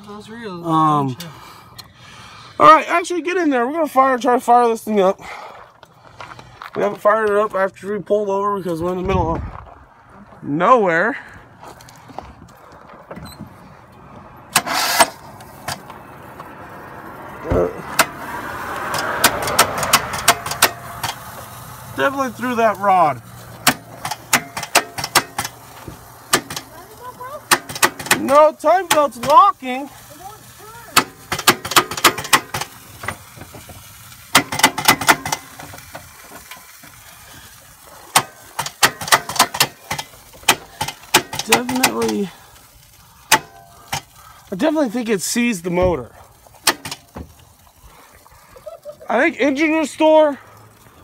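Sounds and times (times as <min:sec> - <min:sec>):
engine cranking burst: 0:14.5 - 0:16.0, 0:16.6 - 0:29.3, 0:29.9 - 0:44.4
engine thump: 0:17.4 - 0:21.4, 0:23.5 - 0:26.7, 0:27.5 - 0:29.4, 0:31.0 - 0:37.0, 0:45.8 - 0:47.4
sharp clicks: 0:18.9 - 0:21.3.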